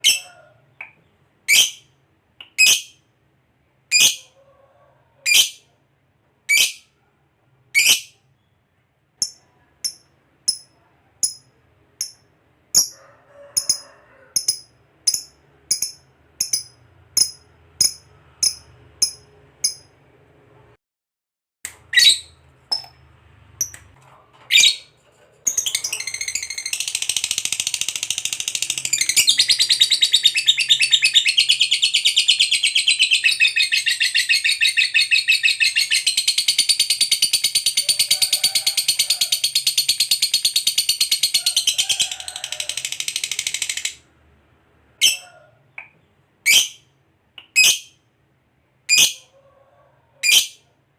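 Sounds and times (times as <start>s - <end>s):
lovebird chirping and trilling: 0.0s - 0.3s, 1.5s - 3.0s, 3.9s - 4.3s, 5.2s - 5.7s, 6.5s - 6.9s, 7.8s - 8.5s, 14.4s - 19.9s, 21.9s - 23.0s, 24.5s - 41.9s, 45.0s - 45.3s, 46.4s - 46.9s, 47.5s - 48.0s, 48.9s - 49.3s, 50.2s - 50.6s.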